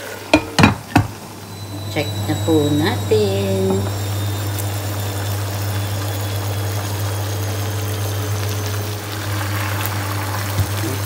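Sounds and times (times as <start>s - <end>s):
steady low hum: 0.8s - 11.0s
chicken sizzling and spitting: 2.8s - 11.0s.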